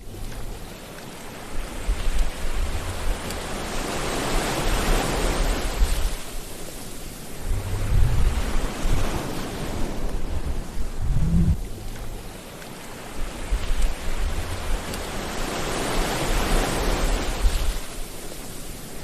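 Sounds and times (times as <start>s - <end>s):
sea waves washing ashore: 0.0s - 19.0s
low rumbling: 7.3s - 12.4s, 13.4s - 15.3s.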